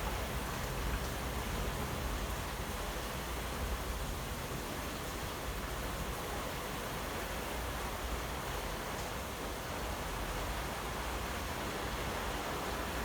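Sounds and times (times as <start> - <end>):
heavy rain downpour: 0.0 - 13.0.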